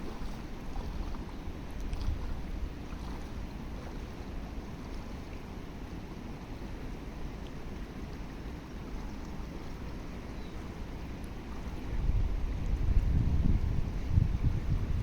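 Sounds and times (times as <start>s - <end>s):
wind rumble on microphone: 0.0s - 4.0s, 11.3s - 15.0s
river flowing: 0.0s - 14.1s.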